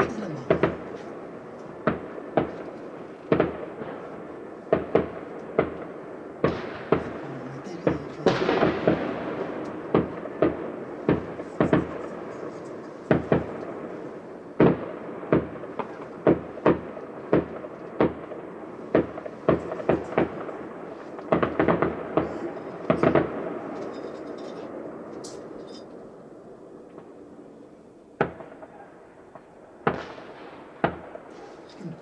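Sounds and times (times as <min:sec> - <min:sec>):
fireworks exploding: 0:00.0 - 0:25.1, 0:28.2 - 0:32.0.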